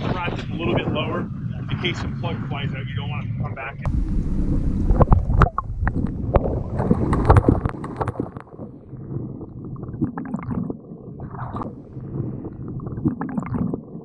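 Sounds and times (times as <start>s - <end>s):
wind buffeting microphone: 0.0s - 13.8s
water splashing against boat: 3.9s - 10.6s.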